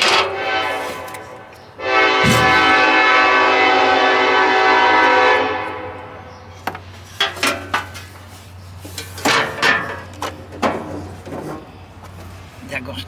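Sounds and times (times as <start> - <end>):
loud horn blast: 0.0 - 6.4.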